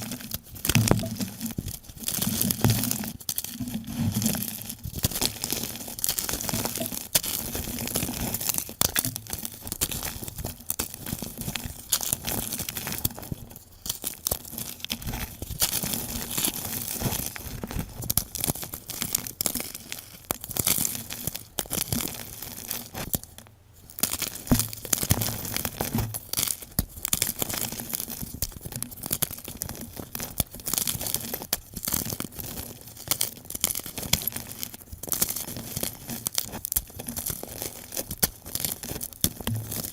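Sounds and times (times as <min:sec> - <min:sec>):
chalk blocks crunching: 0:00.0 - 0:39.9.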